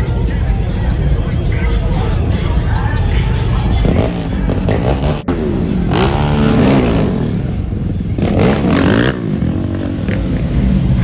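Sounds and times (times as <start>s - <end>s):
car engine idling: 0.0s - 11.0s
car engine revving: 0.6s - 11.0s.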